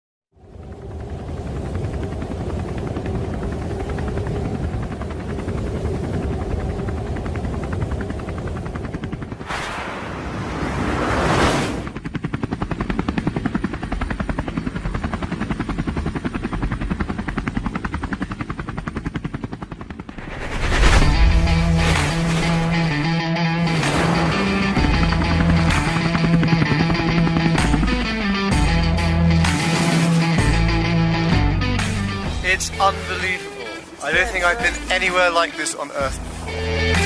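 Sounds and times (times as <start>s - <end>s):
helicopter rotor chopping: 0.4s - 37.0s
rushing noise: 9.4s - 11.9s, 20.1s - 23.1s.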